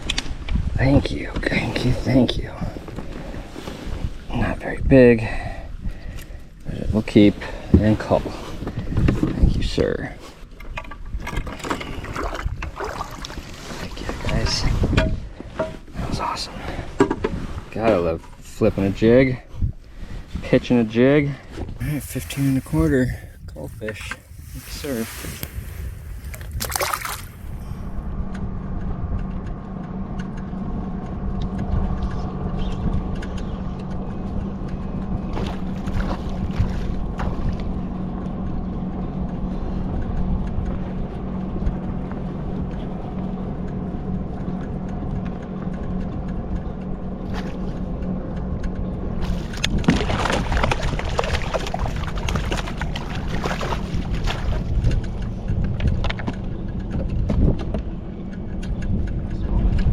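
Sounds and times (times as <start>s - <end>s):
hissing rushing noise: 21.8s - 27.8s
low rumble: 21.8s - 59.9s.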